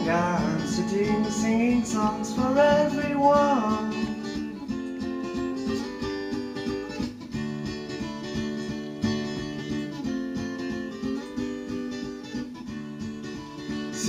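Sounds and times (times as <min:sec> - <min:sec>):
acoustic guitar chords: 0:00.0 - 0:14.0.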